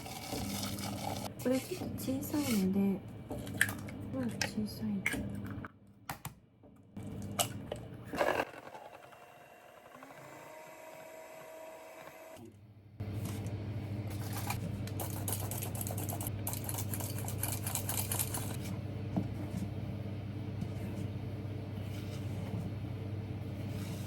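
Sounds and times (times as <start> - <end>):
electric mixer running: 8.1 - 12.4.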